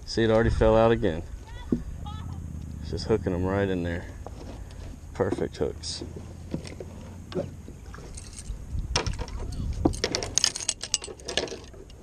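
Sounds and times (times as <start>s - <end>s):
low steady rumble: 0.0s - 12.0s
kayak handling clicks and rattles: 4.2s - 12.0s.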